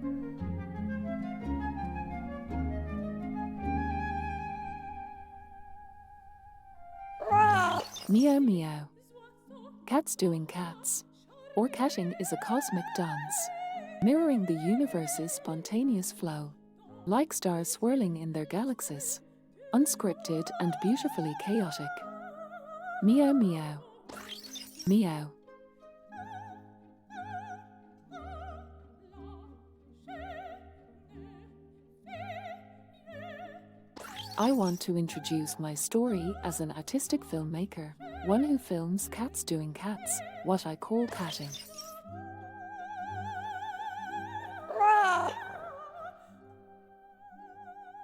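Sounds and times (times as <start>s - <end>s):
woman singing opera: 7.1s - 24.2s, 26.1s - 33.7s, 37.9s - 48.0s
short cry with falling pitch: 7.2s - 7.9s, 44.7s - 45.4s
operatic singing with vibrato: 7.2s - 8.2s, 42.7s - 46.3s.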